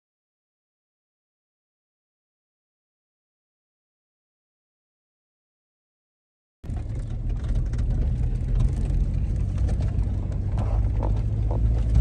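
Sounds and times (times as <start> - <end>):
car engine and road noise: 6.6 - 12.0.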